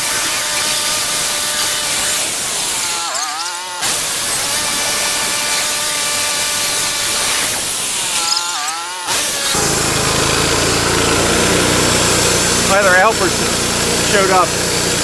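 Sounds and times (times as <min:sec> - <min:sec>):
bandsaw sawmill whine: 0:00.0 - 0:15.0
rough engine running: 0:09.5 - 0:15.0.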